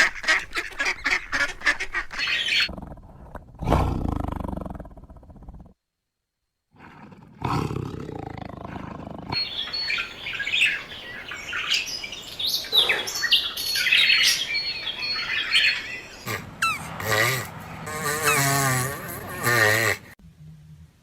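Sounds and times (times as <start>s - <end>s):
birds chirping: 0.0s - 2.7s, 8.0s - 20.2s
low rumbling growl: 2.7s - 5.8s.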